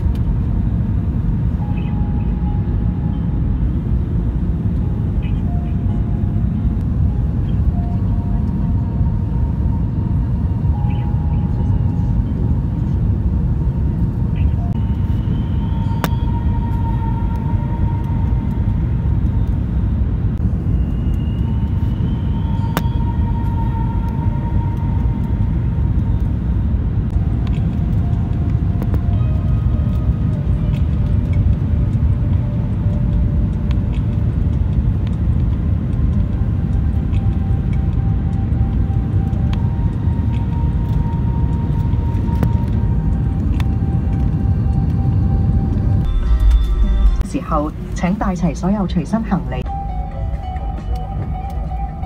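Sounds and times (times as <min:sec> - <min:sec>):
airliner cabin rumble: 0:00.0 - 0:52.0
faint sustained tones: 0:01.5 - 0:20.0.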